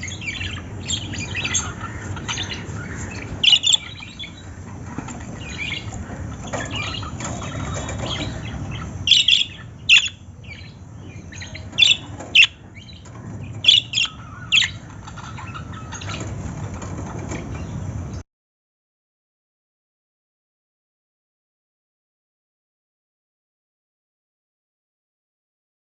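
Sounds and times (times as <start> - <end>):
soft twittering: 0.0 - 16.3
parrots chirping: 0.0 - 17.8.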